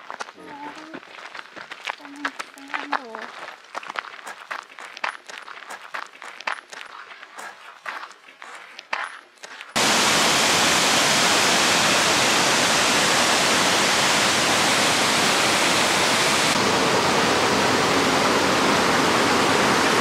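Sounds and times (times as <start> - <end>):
waterfall pouring into a pool: 9.8 - 20.0.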